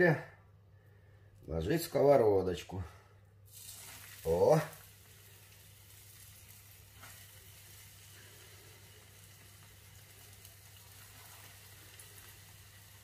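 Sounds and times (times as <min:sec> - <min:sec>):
patties frying in oil: 0:03.5 - 0:13.0.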